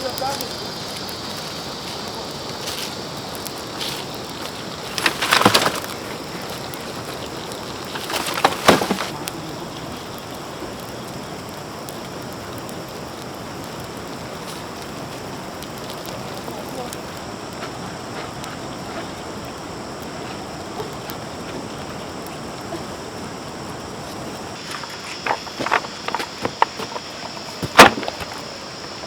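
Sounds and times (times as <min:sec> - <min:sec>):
steady hiss: 0:00.0 - 0:29.0
wooden knocking and clattering: 0:07.9 - 0:09.1, 0:24.6 - 0:28.4.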